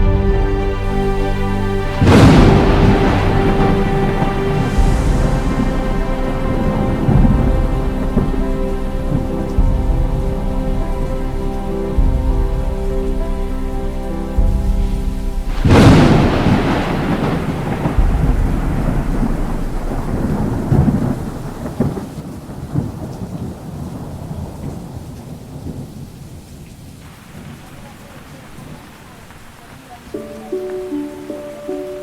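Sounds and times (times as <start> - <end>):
music with held tones: 0.0 - 21.9, 30.1 - 32.0
thunderclap with rolling rumble: 0.0 - 30.2
steady rain: 0.0 - 32.0.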